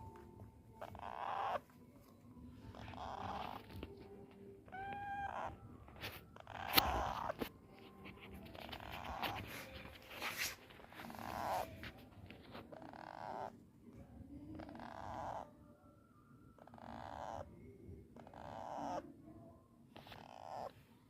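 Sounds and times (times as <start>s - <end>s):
clear pitched parrot call: 0.8s - 1.7s, 2.7s - 3.8s, 4.7s - 5.6s, 16.6s - 17.5s, 18.2s - 19.0s
parrot raspy calls: 0.8s - 1.7s, 2.7s - 3.8s, 4.7s - 5.6s, 6.4s - 7.4s, 11.0s - 11.8s, 12.7s - 13.6s, 16.6s - 17.5s, 18.2s - 19.0s, 20.0s - 20.8s.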